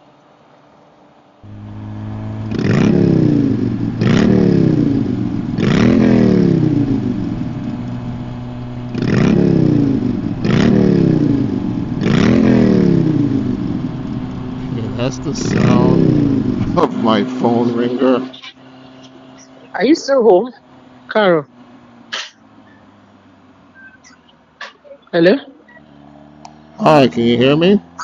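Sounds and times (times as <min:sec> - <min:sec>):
steady tone: 0:01.5 - 0:18.8.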